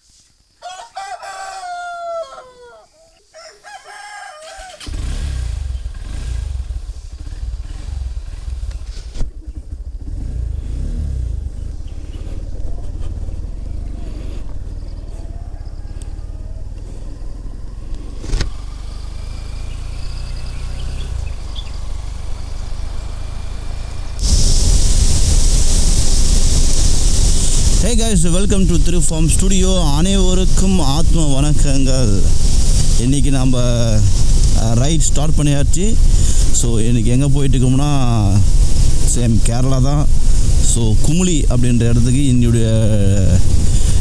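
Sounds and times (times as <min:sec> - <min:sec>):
rooster crowing: 0:00.6 - 0:05.0, 0:14.8 - 0:18.0
motorcycle engine running: 0:04.8 - 0:44.0.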